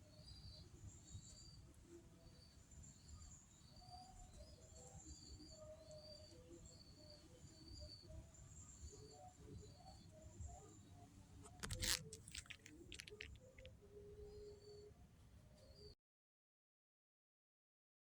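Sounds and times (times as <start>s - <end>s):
small bird chirping: 11.5s - 13.7s.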